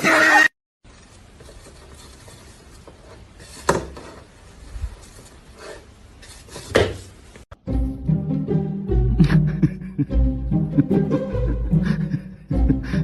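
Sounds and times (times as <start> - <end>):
low room noise: 0.8 - 7.5.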